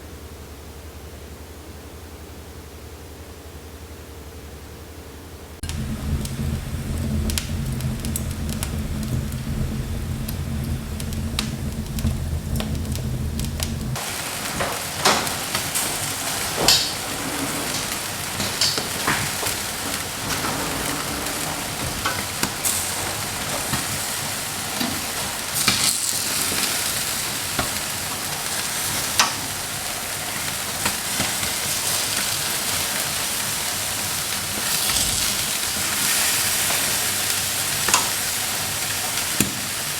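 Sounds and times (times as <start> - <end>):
low steady rumble: 5.6 - 14.1, 34.8 - 36.0
food sizzling in a pan: 13.1 - 20.2, 21.5 - 39.9.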